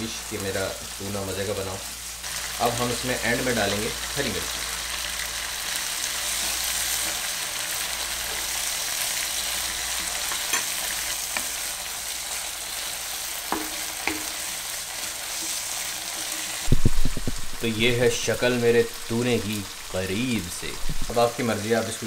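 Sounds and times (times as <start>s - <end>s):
food sizzling in a frying pan: 0.0s - 22.0s
spoons knocking against pan: 13.5s - 14.3s.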